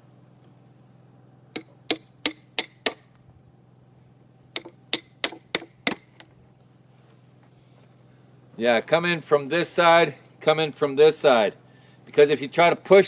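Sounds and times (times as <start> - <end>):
chisel being struck: 1.5 - 3.2, 4.5 - 6.2.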